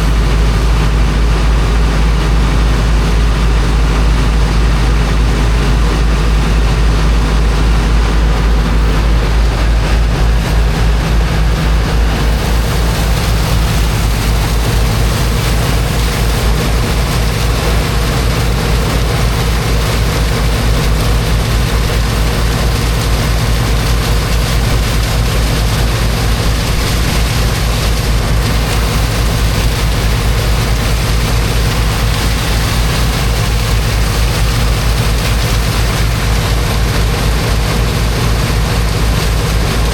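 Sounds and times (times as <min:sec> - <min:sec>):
water pump engine rumbling: 0:00.0 - 0:39.9
water rushing hiss: 0:08.0 - 0:39.9.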